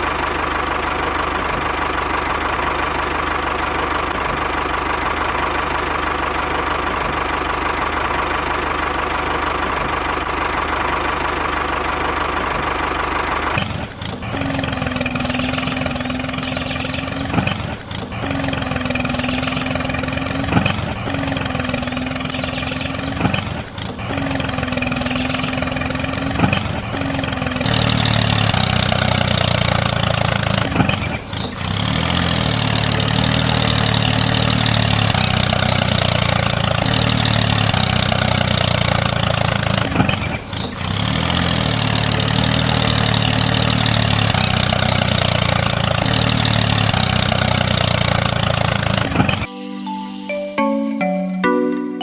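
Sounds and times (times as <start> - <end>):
motor running steadily: 0.0 - 34.0.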